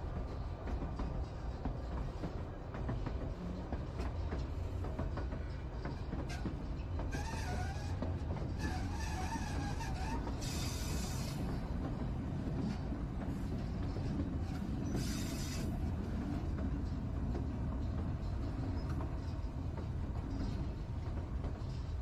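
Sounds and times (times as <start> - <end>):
wheels rumbling on rail: 0.0 - 22.0.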